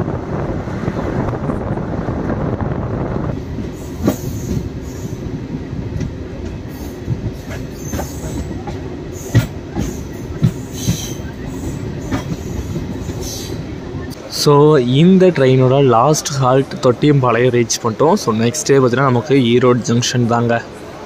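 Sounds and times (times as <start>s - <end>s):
rushing wind noise: 0.0s - 14.3s
train wheels rumbling on rail: 0.0s - 21.0s.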